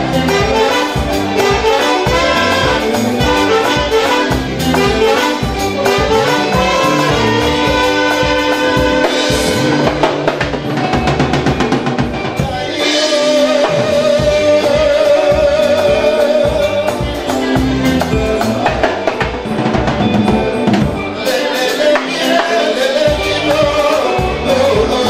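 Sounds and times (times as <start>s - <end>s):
drum kit: 0.0s - 25.0s
fusion band playing: 0.0s - 25.0s.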